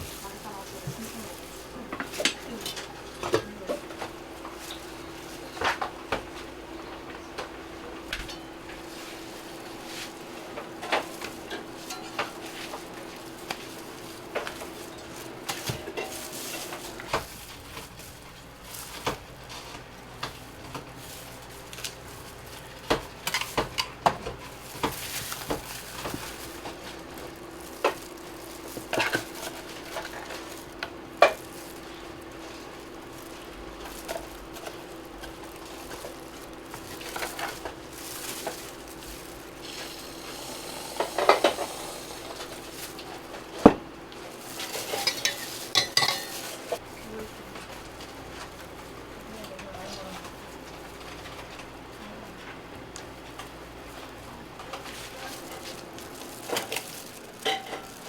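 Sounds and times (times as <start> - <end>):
metal utensils clinking and scraping: 9.9 - 17.9, 23.2 - 32.0, 44.4 - 46.8, 54.8 - 58.0.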